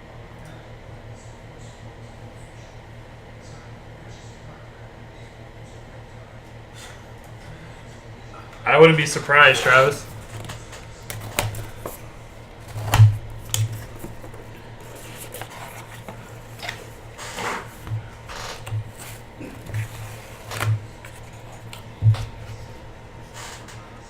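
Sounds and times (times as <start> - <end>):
card packaging rustling: 9.0 - 22.8.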